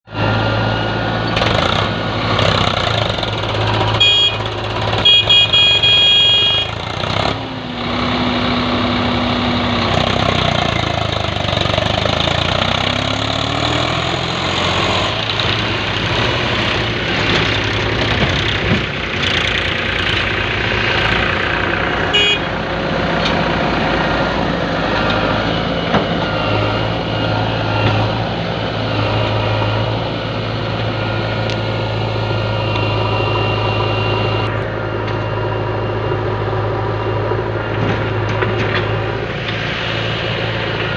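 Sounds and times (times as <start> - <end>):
diesel engines running: 0.0 - 40.9
high-pitched beeps: 30.8 - 37.8.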